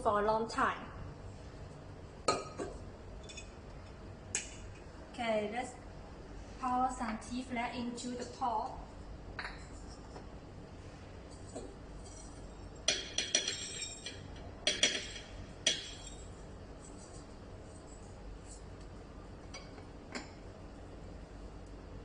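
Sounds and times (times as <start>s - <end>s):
utensils clinking on steel pot: 12.0s - 16.3s.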